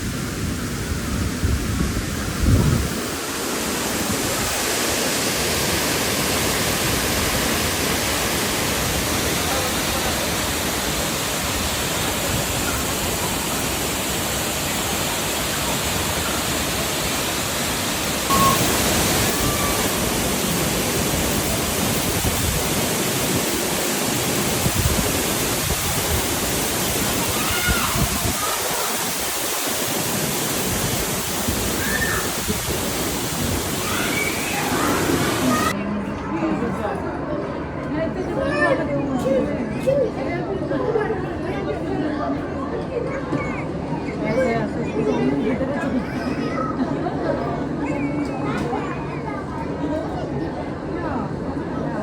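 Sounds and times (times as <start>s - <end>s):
waterfall rushing water: 0.0s - 35.8s.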